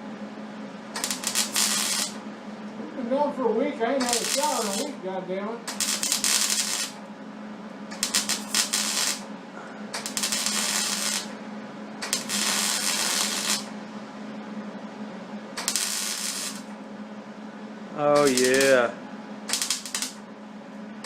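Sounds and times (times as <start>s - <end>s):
steady low hum: 0.0s - 21.0s
welding crackle: 1.0s - 2.2s, 4.0s - 5.0s, 5.7s - 7.0s, 7.9s - 9.3s, 10.0s - 11.4s, 12.0s - 13.7s, 15.6s - 16.7s, 18.1s - 18.9s, 19.5s - 20.2s.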